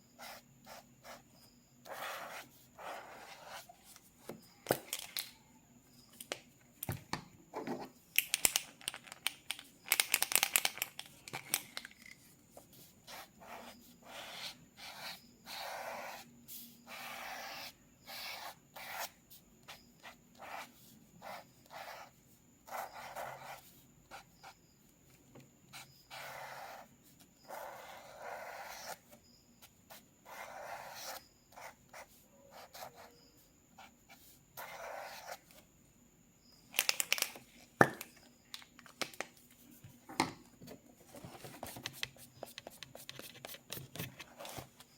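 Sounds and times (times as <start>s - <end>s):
pencil scratching on paper: 0.2s - 4.1s, 12.2s - 24.6s, 25.7s - 35.6s.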